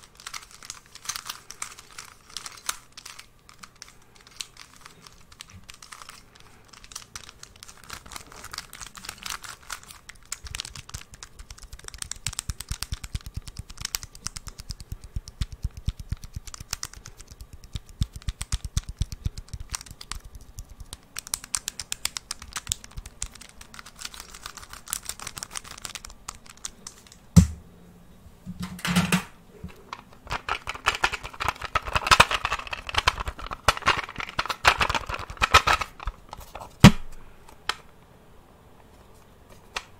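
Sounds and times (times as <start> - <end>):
scratching and rustling: 0.0 - 27.2, 29.6 - 36.9
sharp knock: 27.4 - 27.6.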